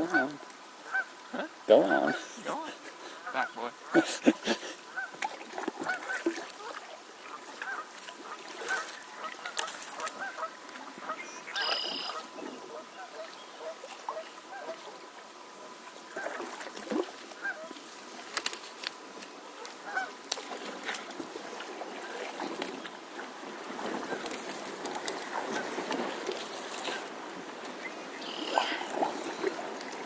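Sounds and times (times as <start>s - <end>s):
geese honking: 0.0s - 2.5s, 3.1s - 4.2s, 4.9s - 5.1s, 7.6s - 14.8s, 19.8s - 20.1s.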